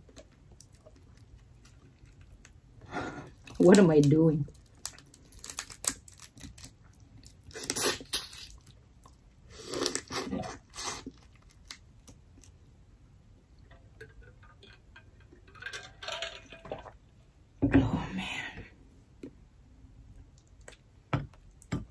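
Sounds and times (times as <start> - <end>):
crunching and wet chewing: 0.0 - 2.6, 4.5 - 12.7.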